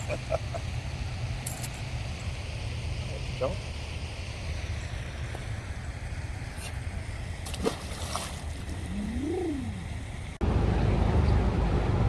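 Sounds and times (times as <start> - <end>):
water splashes: 4.5 - 10.4.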